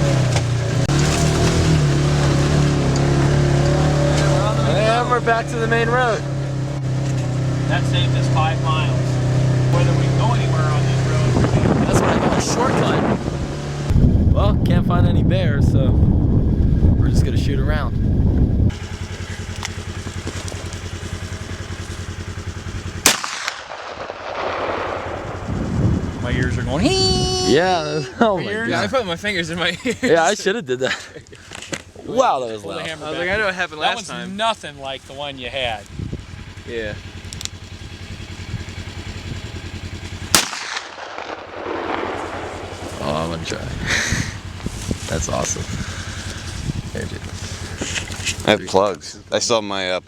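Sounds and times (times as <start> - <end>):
engine idling: 0.0 - 15.5, 18.6 - 50.0
handgun shot echoing: 23.0 - 25.2, 40.3 - 42.5.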